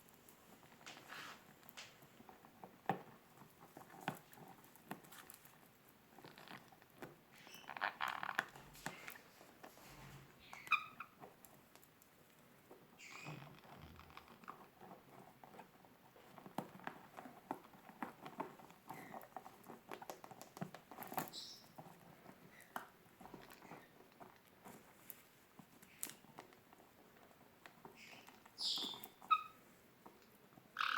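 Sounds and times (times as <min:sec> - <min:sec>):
birds tapping and scrabbling: 0:12.7 - 0:30.9.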